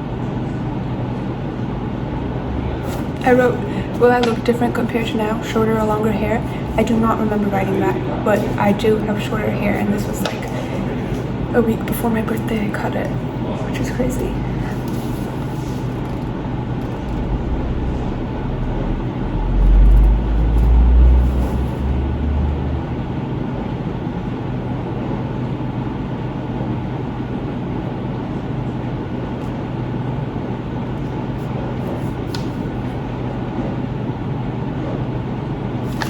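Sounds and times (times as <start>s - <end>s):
deep rumble: 12.6s - 23.7s
car road and engine noise: 16.0s - 23.7s.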